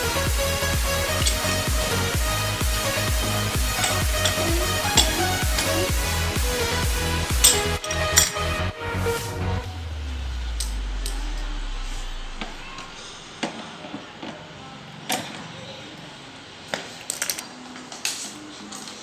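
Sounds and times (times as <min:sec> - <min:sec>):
deep low boom: 0:09.6 - 0:13.4.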